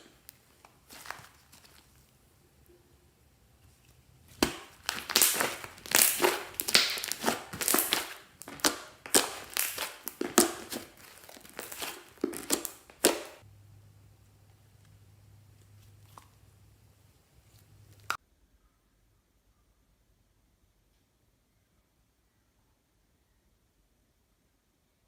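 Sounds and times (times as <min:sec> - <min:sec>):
hands squishing crunchy slime: 0:00.0 - 0:02.2, 0:04.2 - 0:13.4.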